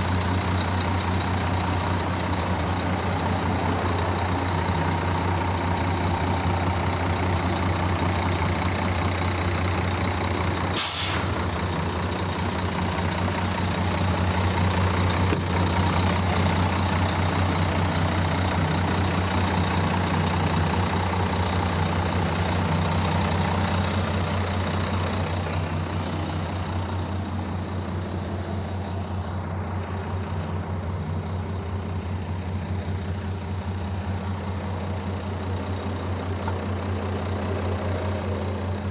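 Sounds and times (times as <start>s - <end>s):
diesel truck engine droning: 0.0s - 38.9s
air brake hiss: 10.7s - 11.9s.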